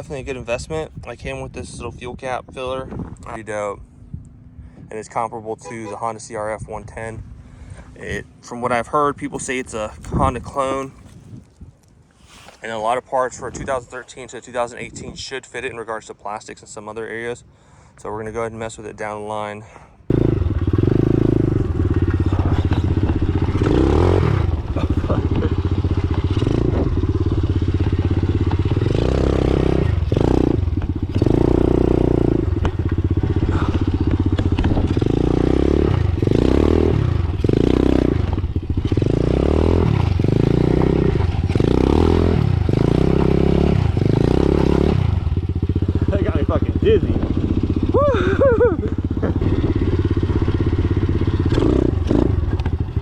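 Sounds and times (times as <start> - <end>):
pit bike engine revving: 20.1 - 53.0.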